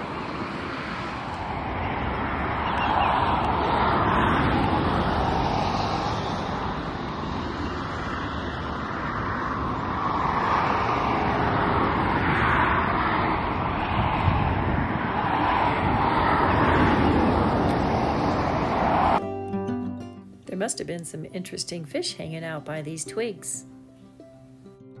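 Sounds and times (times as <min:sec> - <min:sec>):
road traffic tyre noise: 0:00.0 - 0:19.2.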